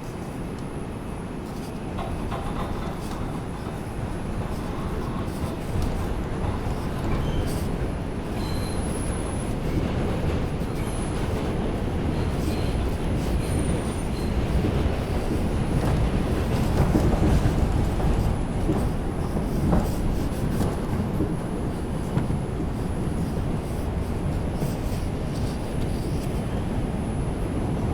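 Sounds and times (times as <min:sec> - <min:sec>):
rumble of wheels on rail: 0:00.0 - 0:27.9
faint high wheel squeals: 0:07.1 - 0:09.6.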